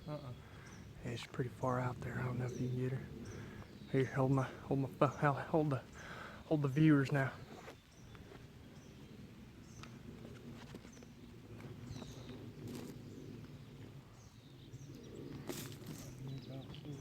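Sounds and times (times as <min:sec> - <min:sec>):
steady low rumble: 0:00.4 - 0:17.0.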